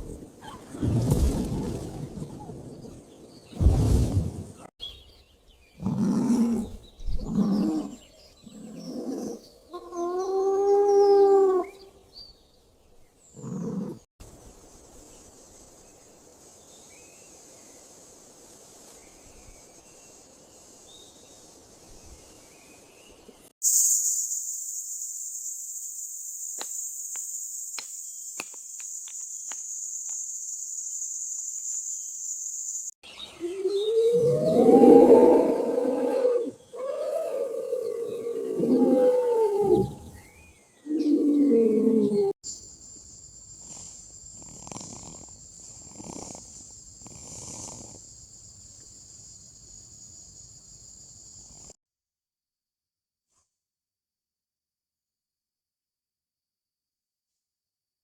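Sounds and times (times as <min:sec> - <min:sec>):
high-pitched insect buzz: 0:23.6 - 0:33.0.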